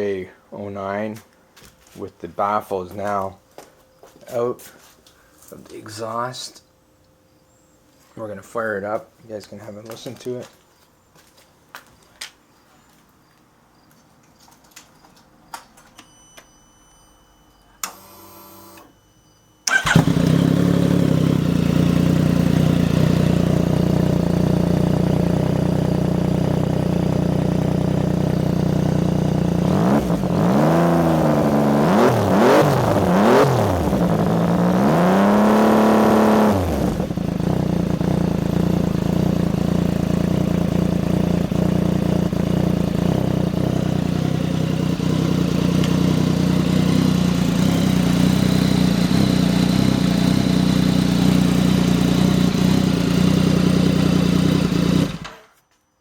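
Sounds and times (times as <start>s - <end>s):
motorcycle throttle blips: 19.6s - 55.5s
motorcycle starter crank: 19.7s - 21.2s
motorcycle engine idling: 19.7s - 30.5s, 36.6s - 55.2s.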